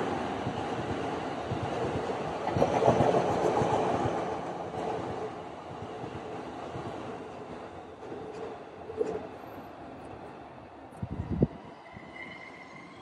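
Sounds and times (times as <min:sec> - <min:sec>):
train wheels clattering on rails: 0:00.0 - 0:09.6.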